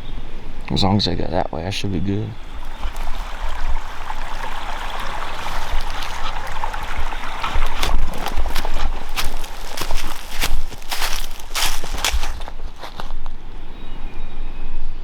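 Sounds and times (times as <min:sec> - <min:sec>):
stream water rushing: 0:02.4 - 0:13.1
footsteps: 0:02.4 - 0:13.4
wind buffeting microphone: 0:02.4 - 0:13.7.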